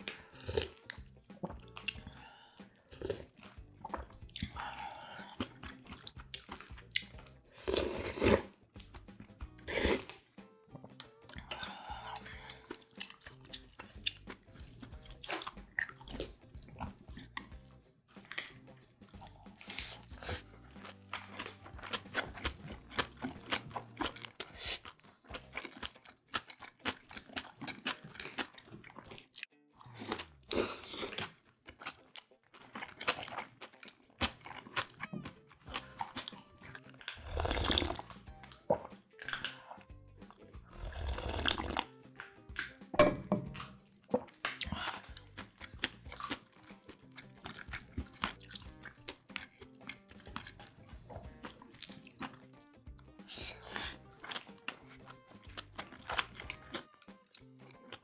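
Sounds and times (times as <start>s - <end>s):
chewing and crunching food: 0.0s - 42.9s, 43.5s - 58.0s
slurping soup from bowl: 7.6s - 8.6s, 9.6s - 10.2s, 19.2s - 20.7s, 29.8s - 31.4s, 35.8s - 41.9s, 53.2s - 55.1s.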